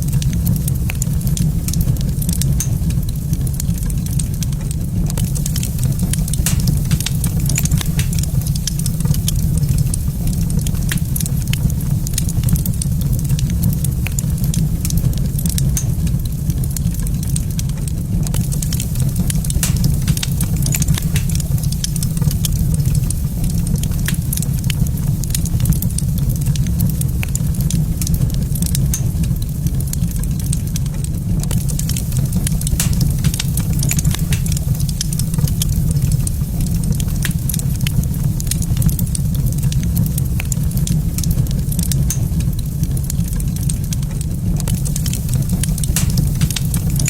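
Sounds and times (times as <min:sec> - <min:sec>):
wood fire crackling and popping: 0:00.0 - 0:47.0.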